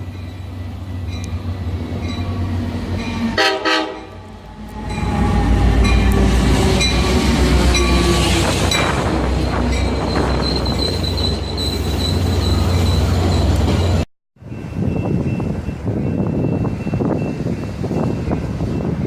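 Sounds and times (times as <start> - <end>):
train passing with low rumble: 0.0 - 19.0
train horn blast: 3.2 - 4.2
high squealing tones: 4.8 - 14.0.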